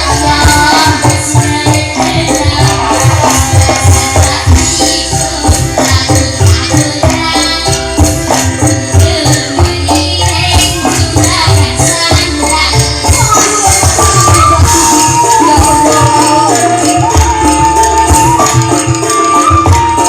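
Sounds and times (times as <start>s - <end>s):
drum beat: 0.0s - 4.8s
instrumental band music: 0.0s - 20.0s
jingling tambourine: 0.0s - 20.0s.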